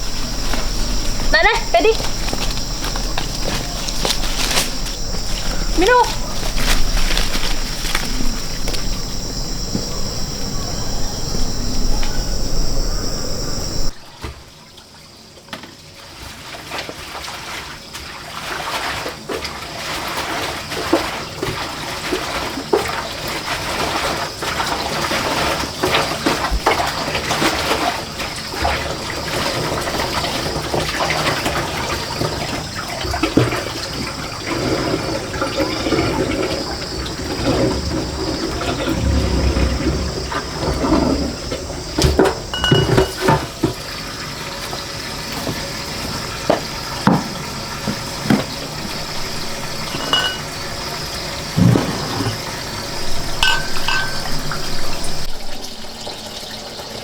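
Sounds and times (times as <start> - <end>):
water running and splashing: 0.0 - 14.9, 15.7 - 57.0
small knocks and clatters: 41.9 - 43.8.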